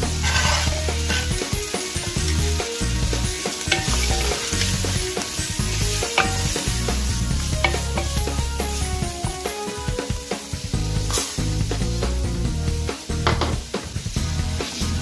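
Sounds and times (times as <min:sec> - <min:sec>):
wooden spatula scraping a pan: 0:00.0 - 0:01.5, 0:03.6 - 0:08.8
food sizzling in a pan: 0:00.0 - 0:15.0.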